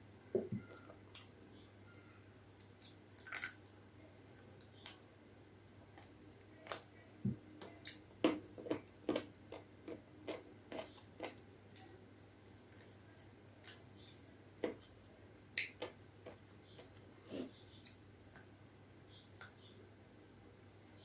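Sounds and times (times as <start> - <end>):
person chewing food: 7.6 - 14.9, 15.5 - 17.0.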